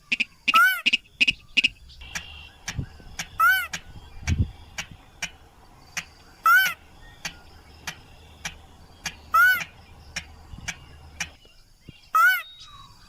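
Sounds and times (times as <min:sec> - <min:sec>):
rail bird squealing calls: 0:00.0 - 0:02.6, 0:03.3 - 0:03.8, 0:06.4 - 0:06.9, 0:09.2 - 0:09.8, 0:12.1 - 0:12.9
sharp ticking bird notes: 0:00.0 - 0:13.0.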